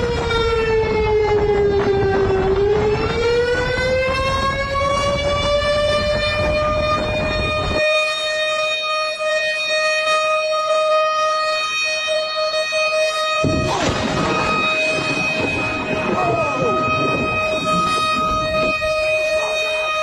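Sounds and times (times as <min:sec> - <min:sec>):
warning siren tone: 0:00.0 - 0:20.0
low rumbling noise: 0:13.4 - 0:20.0.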